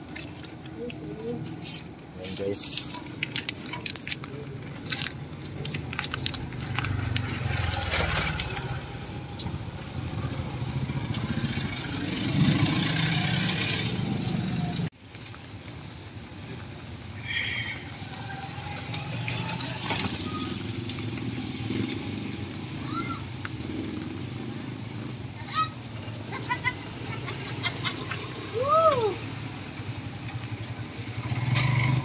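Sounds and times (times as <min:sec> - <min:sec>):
motorcycle engine revving: 0:06.0 - 0:14.9, 0:17.8 - 0:25.3, 0:29.4 - 0:32.0
rain hiss: 0:15.0 - 0:25.1.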